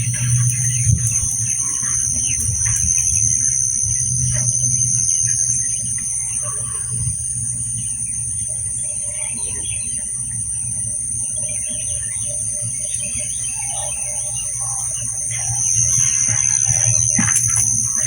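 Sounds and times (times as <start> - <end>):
insects droning: 0.0 - 18.0
low steady hum: 0.0 - 18.0
bird chirps: 7.8 - 18.0.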